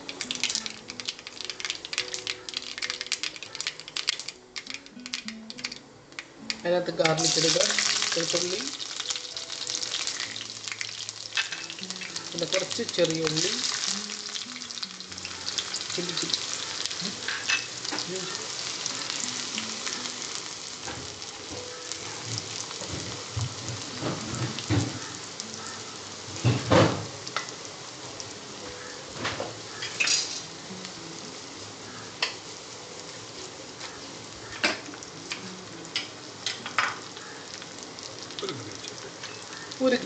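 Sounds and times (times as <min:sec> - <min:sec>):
shallots sizzling in oil: 0:00.0 - 0:40.0.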